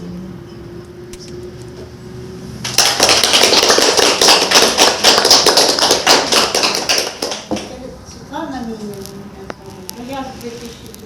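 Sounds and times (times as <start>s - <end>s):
audience clapping: 2.6s - 7.7s.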